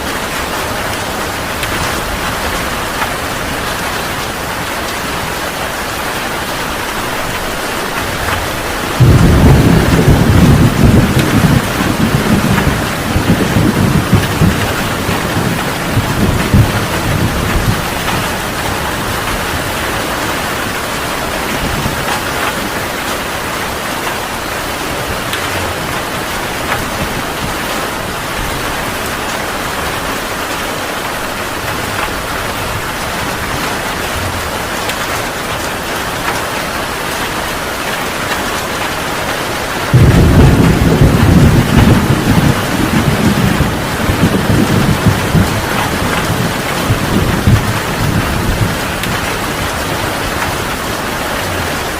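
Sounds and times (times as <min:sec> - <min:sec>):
heavy rain: 0:00.0 - 0:51.9
thunder rumbling: 0:06.7 - 0:23.2, 0:39.7 - 0:51.9.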